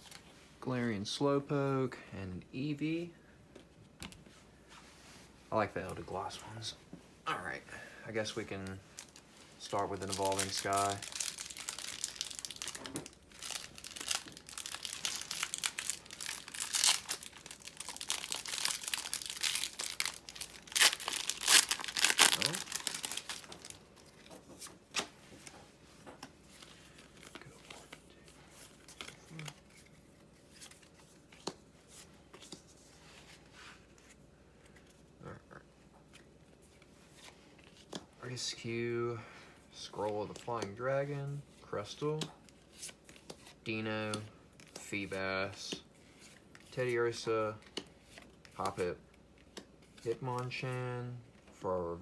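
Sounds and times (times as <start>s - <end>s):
cards clicking and rustling: 8.6s - 32.8s
foil wrapper crinkling: 8.9s - 24.3s
foil pack tearing: 10.0s - 23.7s.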